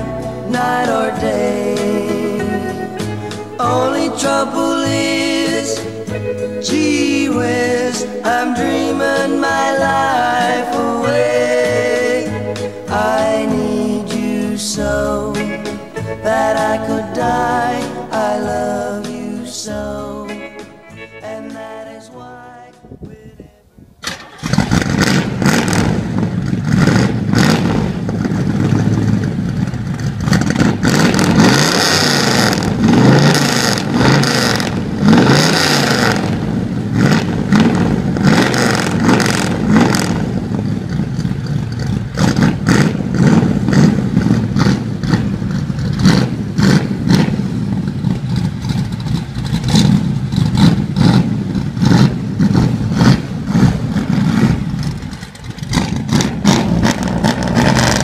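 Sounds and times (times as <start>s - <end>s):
car engine revving: 24.1s - 58.0s.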